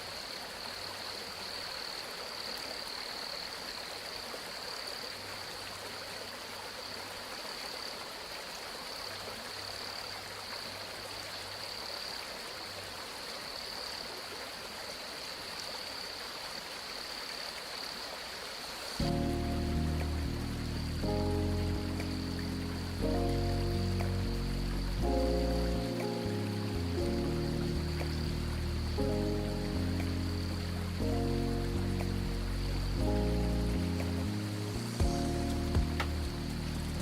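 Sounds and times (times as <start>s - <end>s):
stream water flowing: 0.0s - 37.0s
music: 19.0s - 37.0s.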